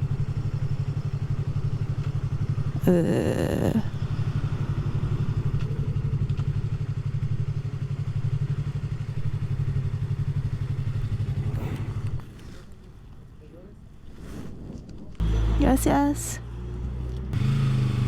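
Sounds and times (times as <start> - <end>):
motorcycle engine idling: 0.0 - 2.8, 3.9 - 12.2.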